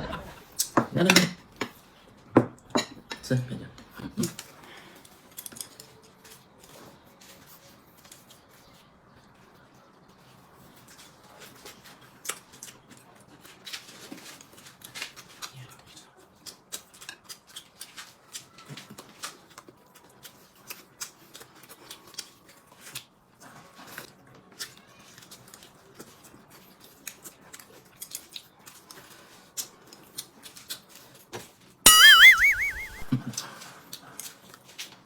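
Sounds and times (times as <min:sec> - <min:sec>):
warbling comedy sound effect: 0:31.9 - 0:33.1.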